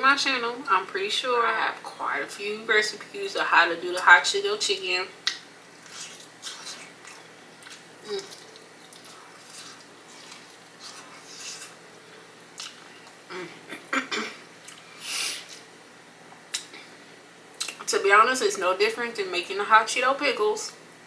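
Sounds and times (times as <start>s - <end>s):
chewing crunchy food: 5.2s - 13.3s.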